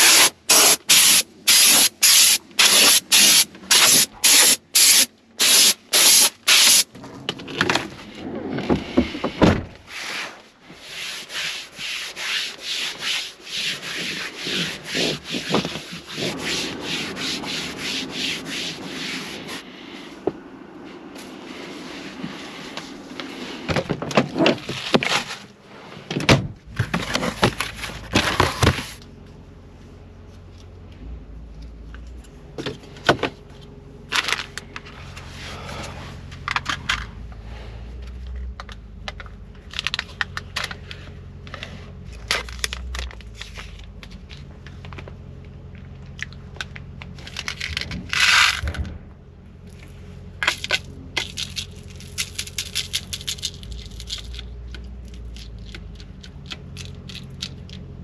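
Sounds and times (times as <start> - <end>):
steady low hum: 0.0 - 58.0
crinkling scraping and clicking: 22.7 - 29.1, 31.6 - 37.2, 38.0 - 49.0, 49.7 - 58.0.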